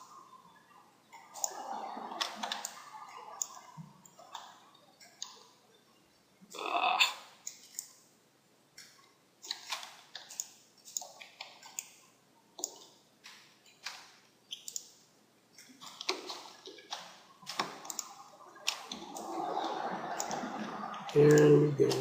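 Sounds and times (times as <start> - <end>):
computer mouse clicking: 1.1 - 1.6, 2.2 - 2.8, 7.4 - 8.0, 8.8 - 12.0, 12.6 - 15.0, 15.6 - 22.0.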